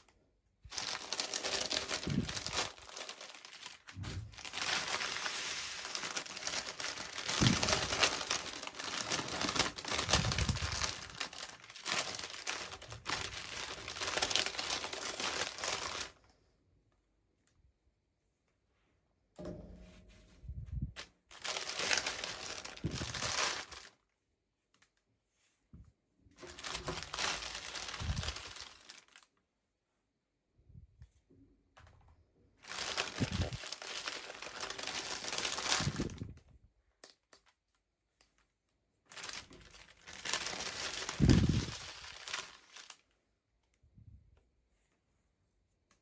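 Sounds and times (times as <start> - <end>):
plastic packaging crinkling and tearing: 0.6 - 16.3, 21.3 - 24.1, 26.4 - 29.4, 32.6 - 36.4, 39.1 - 43.1.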